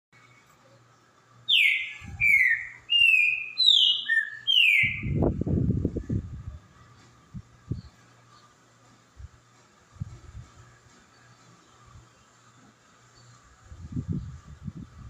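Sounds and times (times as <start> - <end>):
bird whistling song: 1.5 - 5.3
low rumbling noise: 4.8 - 12.1.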